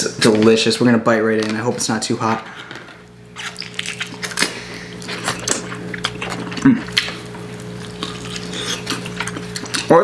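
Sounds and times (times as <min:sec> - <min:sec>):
chewing and tearing meat: 0:03.3 - 0:10.0.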